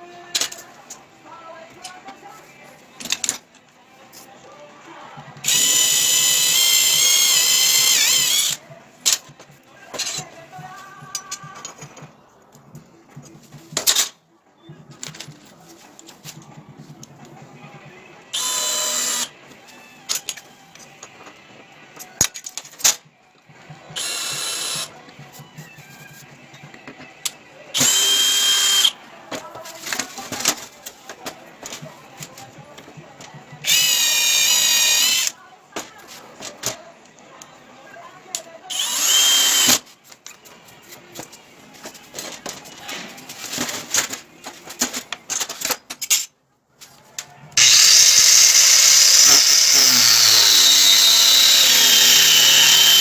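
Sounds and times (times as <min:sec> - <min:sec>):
handheld power tool running: 0:05.4 - 0:08.6, 0:18.4 - 0:19.3, 0:24.0 - 0:24.9, 0:27.8 - 0:28.9, 0:33.6 - 0:35.3, 0:38.7 - 0:39.8, 0:47.6 - 0:53.0
clicks and knocks of handled tools: 0:41.2 - 0:47.3.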